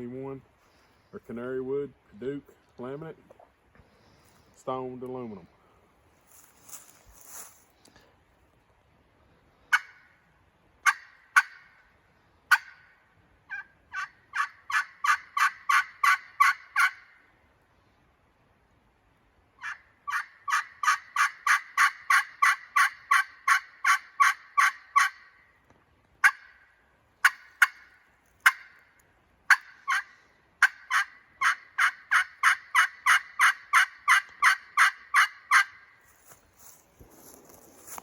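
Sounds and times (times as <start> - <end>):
turkey call clucks: 9.7 - 10.2, 10.8 - 11.8, 12.5 - 12.9, 13.5 - 17.2, 19.6 - 25.4, 26.2 - 28.9, 29.5 - 35.9
turkey pot call yelps: 9.7 - 10.2, 10.8 - 11.8, 12.5 - 17.3, 19.6 - 25.4, 26.2 - 28.9, 29.5 - 35.9.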